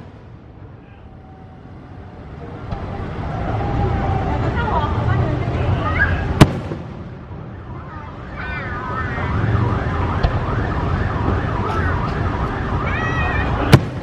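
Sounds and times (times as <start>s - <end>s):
sharp crack: 6.4s - 7.2s, 13.6s - 14.0s
siren wailing: 7.4s - 13.8s.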